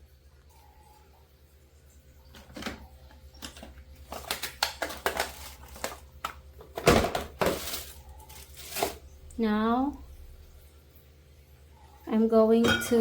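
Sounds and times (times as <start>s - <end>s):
faint low fridge hum: 0.0s - 13.0s
plastic parts clicking and knocking: 3.4s - 7.8s.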